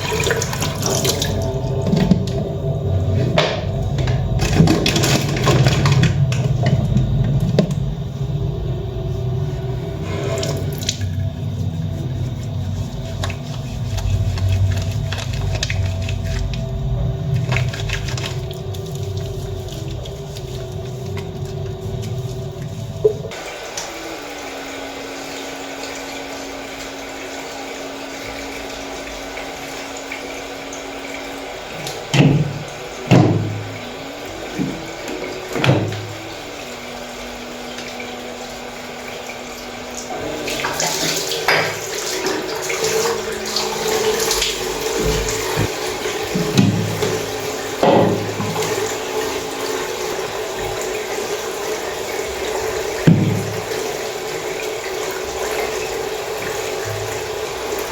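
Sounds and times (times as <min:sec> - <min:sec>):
tap running into sink: 0:00.0 - 0:08.0, 0:31.7 - 0:36.4, 0:40.0 - 0:57.9.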